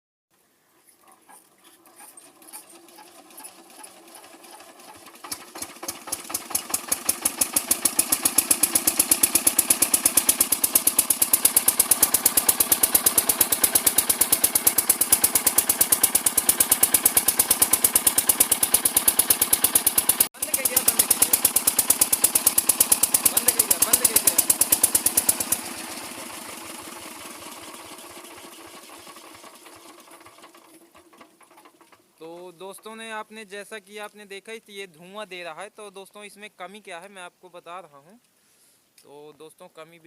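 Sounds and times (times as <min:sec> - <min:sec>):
diesel engine running: 0:02.4 - 0:31.9.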